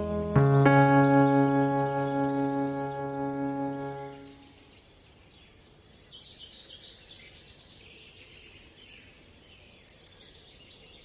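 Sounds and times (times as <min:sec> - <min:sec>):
high falling bird call: 0:00.0 - 0:04.6
birds chirping: 0:00.0 - 0:11.0.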